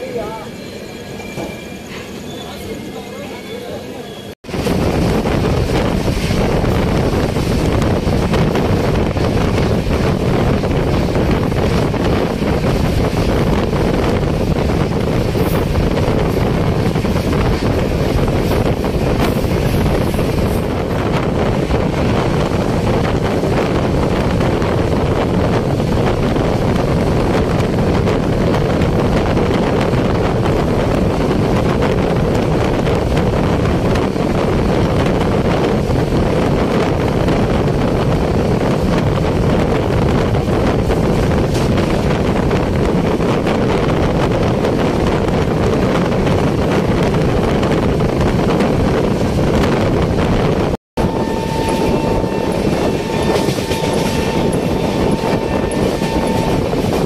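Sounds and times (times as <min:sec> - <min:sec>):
train rumbling at speed: 0:00.0 - 0:57.0
wind on microphone: 0:04.4 - 0:57.0.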